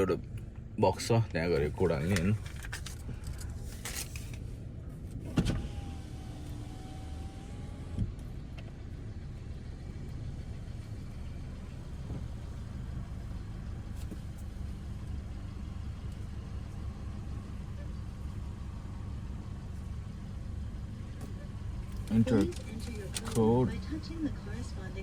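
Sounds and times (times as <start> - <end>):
car engine idling: 0.0 - 25.0
power window winding down: 5.4 - 8.0.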